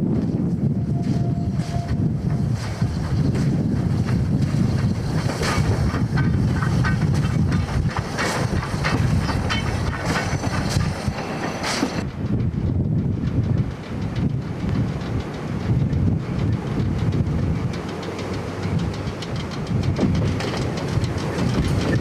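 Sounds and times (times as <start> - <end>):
train rumbling along track: 0.0 - 22.0
high wheel squeals: 0.8 - 2.2, 8.4 - 12.1
wheels clicking over rail joints: 1.8 - 22.0.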